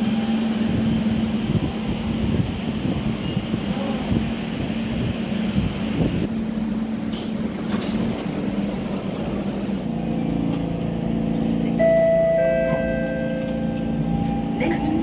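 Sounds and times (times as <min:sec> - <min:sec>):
train equipment electrical hum: 0:00.0 - 0:15.0
loud steady high tone: 0:11.8 - 0:15.0.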